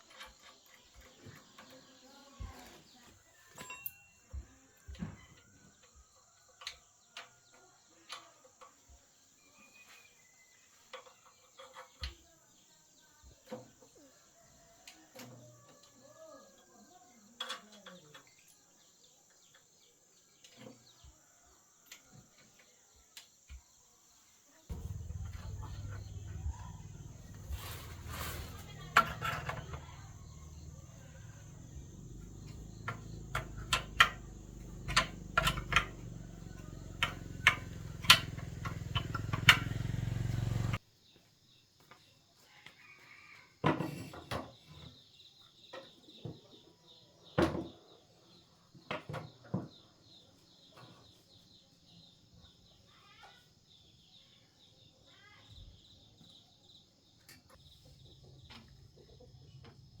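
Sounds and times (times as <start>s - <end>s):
insect trill: 24.0s - 40.7s
low hum: 24.7s - 35.1s
scattered knocks: 24.7s - 40.0s.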